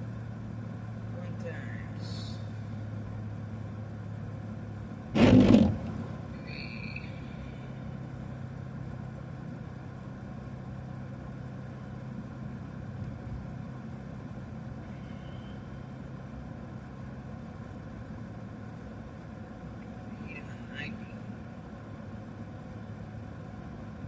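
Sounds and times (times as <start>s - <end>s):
road noise rushing: 0.0s - 9.5s
car engine hum: 0.0s - 24.0s.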